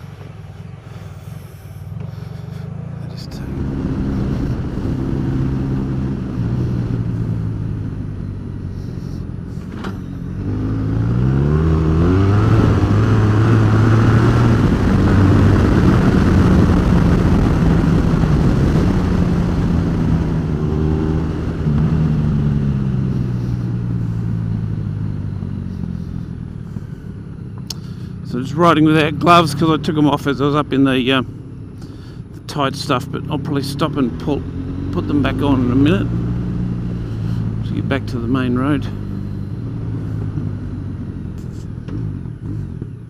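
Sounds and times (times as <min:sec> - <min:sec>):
motorcycle engine revving: 0:00.0 - 0:43.0
wind and road noise: 0:00.0 - 0:43.0.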